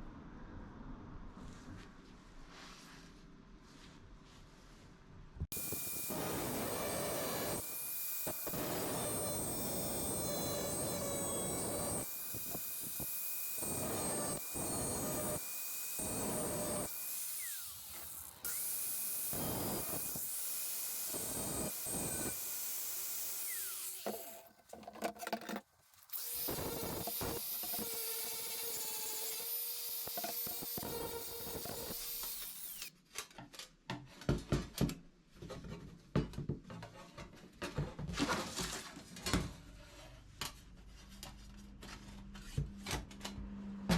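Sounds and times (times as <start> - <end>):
power tool cutting steel sheet: 5.5 - 24.5, 26.1 - 32.9.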